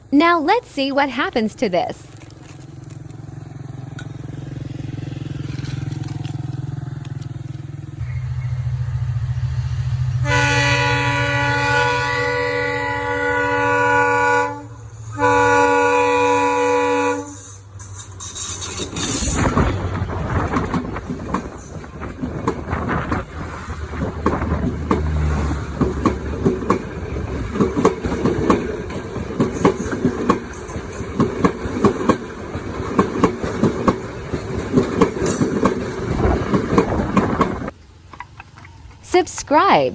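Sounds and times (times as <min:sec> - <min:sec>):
train horn blasts: 0:10.1 - 0:17.6
train wheels clicking: 0:17.1 - 0:39.0.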